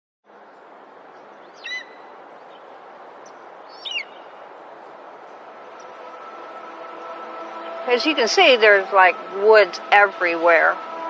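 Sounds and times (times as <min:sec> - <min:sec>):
steady outdoor hiss: 0:00.3 - 0:11.0
bird chirping: 0:00.4 - 0:04.4.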